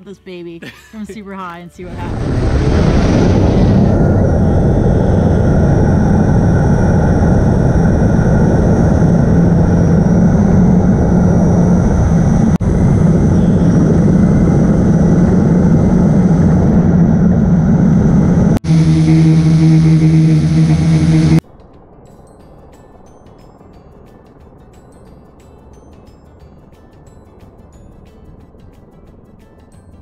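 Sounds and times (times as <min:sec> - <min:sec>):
drone motors and propellers: 0:01.8 - 0:21.4.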